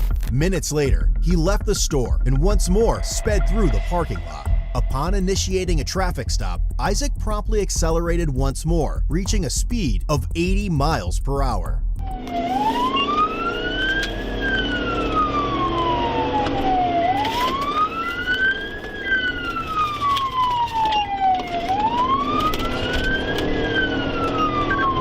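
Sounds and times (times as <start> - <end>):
police siren wailing: 2.4 - 5.1, 12.0 - 25.0.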